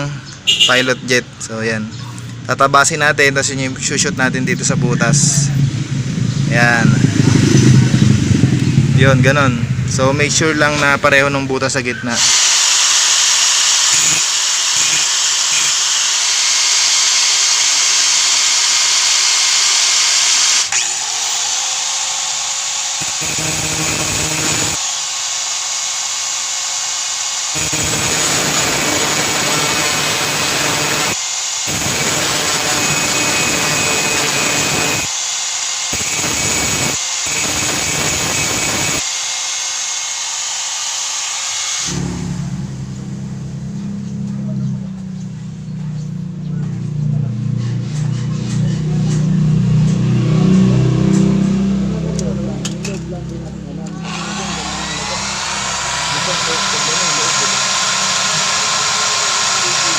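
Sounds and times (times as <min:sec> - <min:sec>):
small electric drill running: 0:12.2 - 0:42.0, 0:53.9 - 0:59.9.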